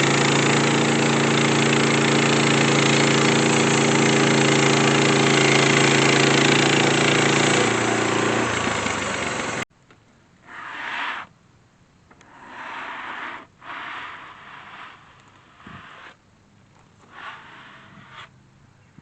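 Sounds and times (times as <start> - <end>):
sawmill engine running: 0.0 - 9.6, 12.2 - 16.2, 17.0 - 18.3
loud hiss: 12.2 - 16.2, 17.0 - 18.3.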